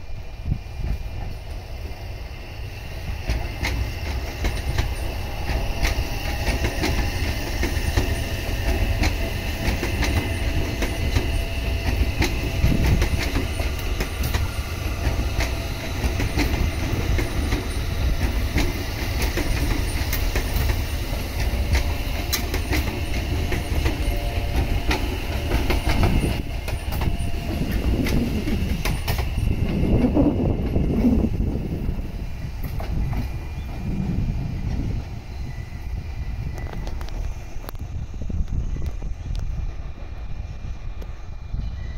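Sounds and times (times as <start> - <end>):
train rumble: 0.0 - 41.9
traction motor whine: 0.3 - 41.9
wheels clicking over rail joints: 3.2 - 31.4.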